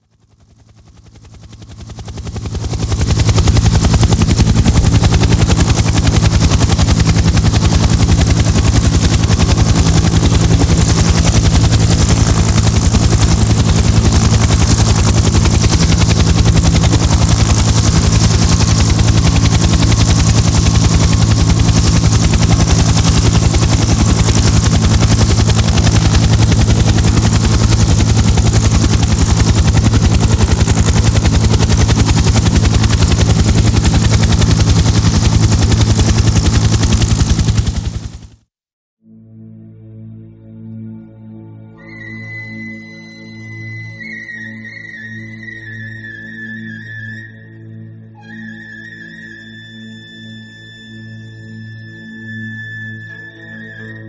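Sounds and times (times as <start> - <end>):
helicopter rotor and engine: 0.0 - 38.4.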